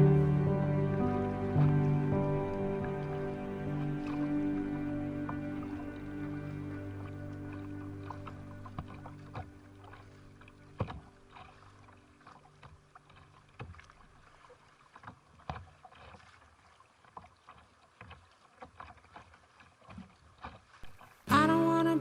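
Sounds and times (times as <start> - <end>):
song: 0.0 - 8.9, 21.3 - 22.0.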